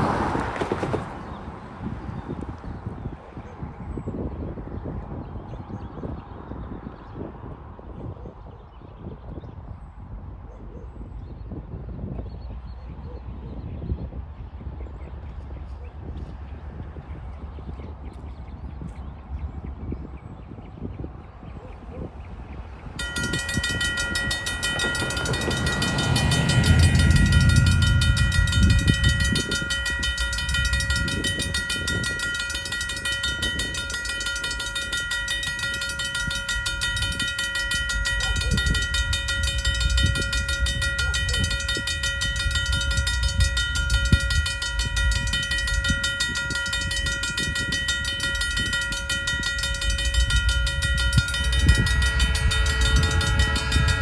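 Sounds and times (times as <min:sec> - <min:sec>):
diesel locomotive engine: 0:00.0 - 0:02.1, 0:22.6 - 0:54.0
railroad crossing bell ringing: 0:23.0 - 0:54.0
train wheels knocking over rail joints: 0:23.0 - 0:54.0.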